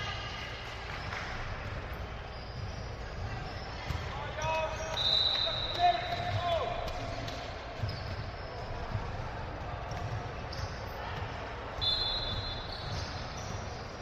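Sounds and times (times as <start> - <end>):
gym background noise: 0.0 - 14.0
basketball bouncing on gym floor: 1.0 - 14.0.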